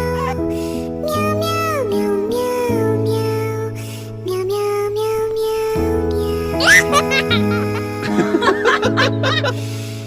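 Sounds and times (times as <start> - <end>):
synthetic voice singing meow-like notes: 6.5 - 8.1.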